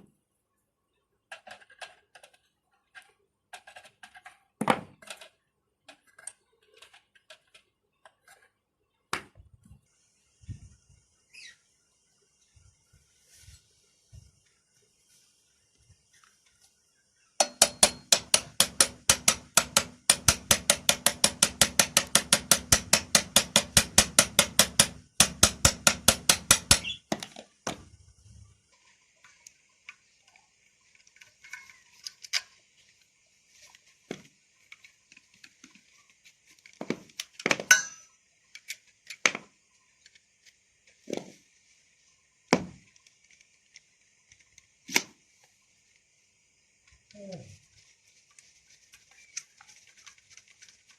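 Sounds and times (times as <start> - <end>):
fast hammer taps on metal: 17.4 - 27.0
knocks and clinks of parts: 36.8 - 39.4.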